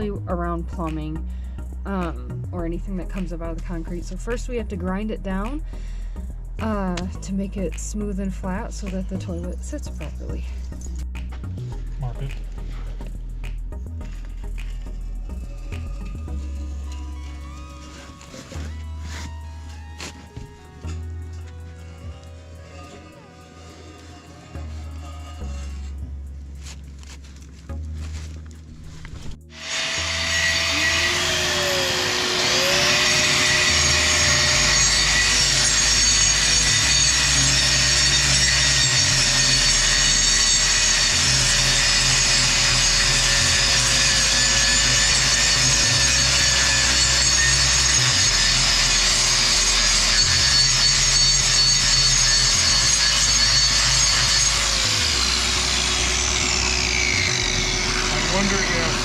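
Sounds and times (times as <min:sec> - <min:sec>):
power grinder grinding concrete: 0:14.0 - 0:26.0, 0:29.5 - 0:59.0.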